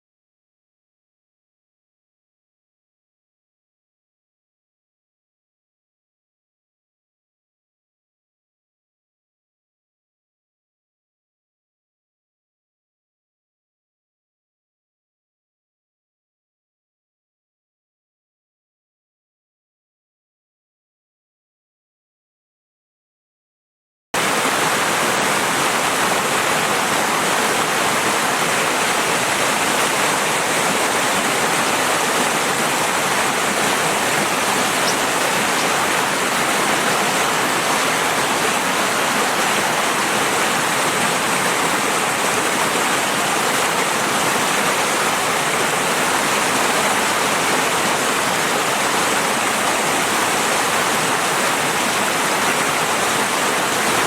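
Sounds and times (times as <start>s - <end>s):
river water rushing: 24.2s - 54.0s.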